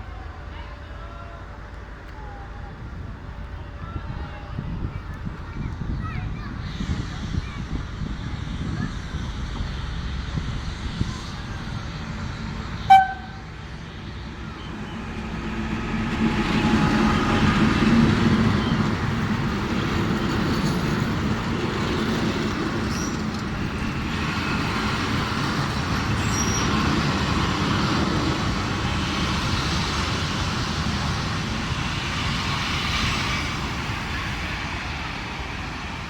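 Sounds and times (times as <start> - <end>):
diesel locomotive engine drone: 0.0 - 36.0.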